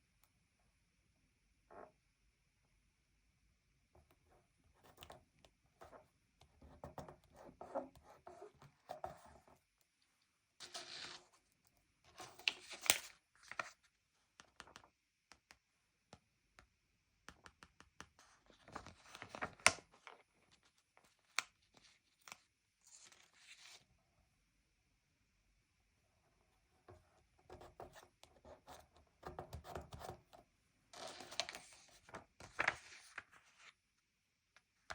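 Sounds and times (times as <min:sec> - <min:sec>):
paper rustling: 0:10.6 - 0:11.4, 0:31.0 - 0:33.8
taps on paper: 0:17.3 - 0:18.2.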